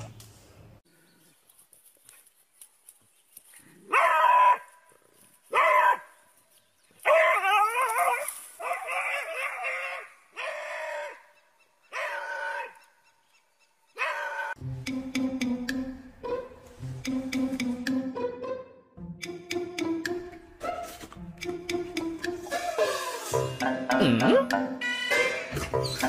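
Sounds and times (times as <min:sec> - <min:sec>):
dog barking: 0:03.9 - 0:04.7, 0:05.5 - 0:06.1, 0:08.6 - 0:11.2.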